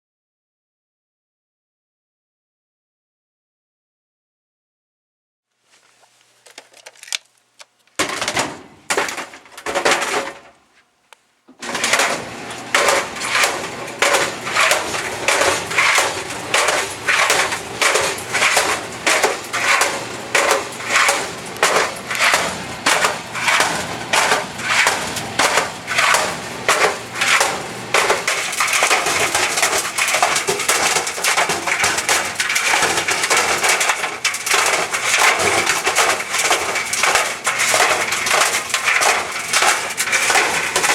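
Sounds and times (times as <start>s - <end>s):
clothes dryer hum: 5.6s - 40.9s
laptop banging in dryer drum: 8.0s - 10.6s, 11.5s - 40.9s.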